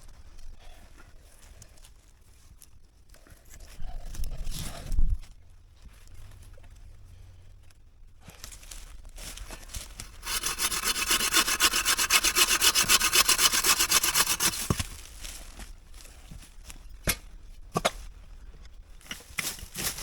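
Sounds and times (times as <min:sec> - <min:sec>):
hand saw cutting wood: 0:10.1 - 0:15.0.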